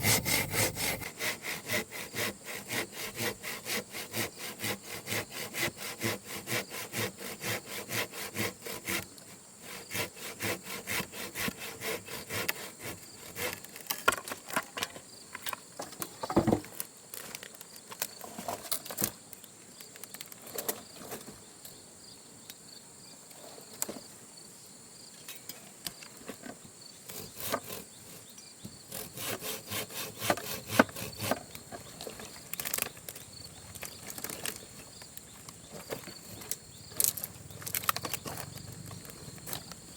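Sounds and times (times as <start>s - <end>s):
saw cutting wood: 0.0s - 13.6s, 27.1s - 28.2s, 28.9s - 31.6s
wood knocks and cracks: 15.8s - 16.8s
insects buzzing: 26.8s - 39.9s.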